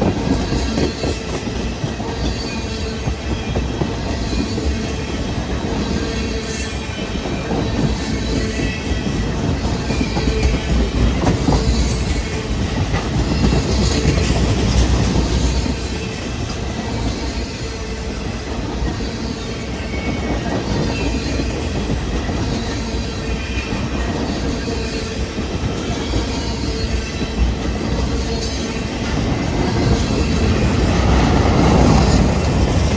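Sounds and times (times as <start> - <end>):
train wheels clacking over rail joints: 0.0 - 17.6.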